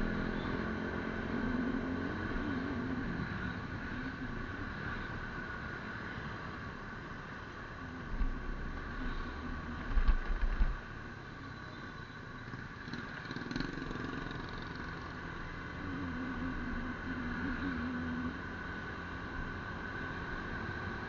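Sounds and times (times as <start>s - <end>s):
vehicle engine and road noise: 0.0s - 21.0s.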